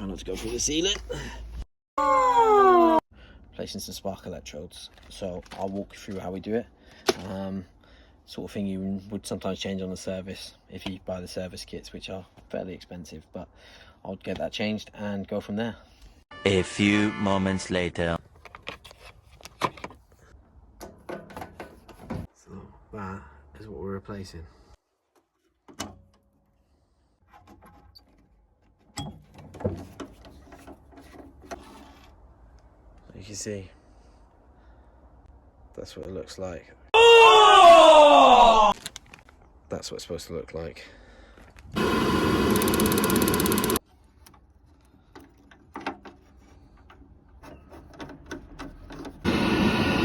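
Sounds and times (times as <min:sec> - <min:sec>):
gas boiler fan running: 0:41.8 - 0:43.8
ignition clicks: 0:42.4 - 0:43.8
metal parts clicking and tapping: 0:42.6 - 0:47.1.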